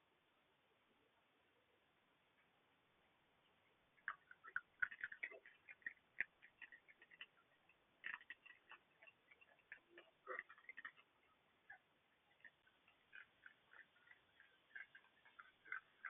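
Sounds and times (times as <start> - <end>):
claws clicking and scratching on boat: 4.0 - 16.0.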